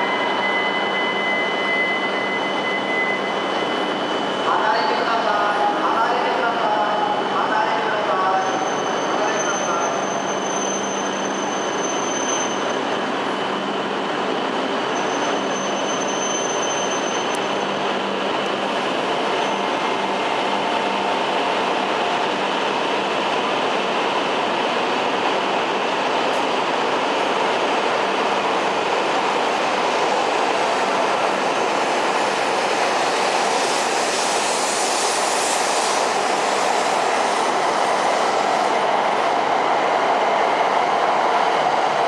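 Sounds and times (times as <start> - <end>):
train wheels on rails: 8.4 - 42.0.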